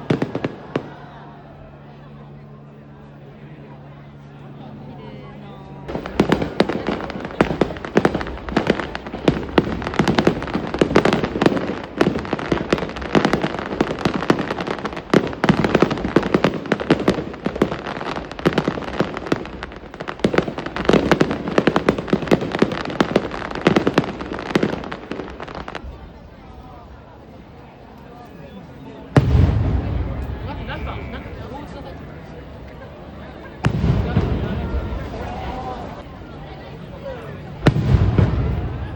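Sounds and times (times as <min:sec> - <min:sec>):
fireworks cracking and popping: 0:00.0 - 0:01.0, 0:05.9 - 0:26.6, 0:33.5 - 0:36.0, 0:37.5 - 0:38.9.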